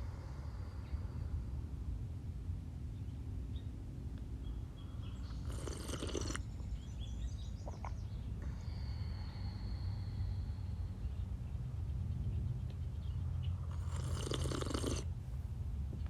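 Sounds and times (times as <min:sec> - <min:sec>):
low wind rumble: 0:00.0 - 0:16.0.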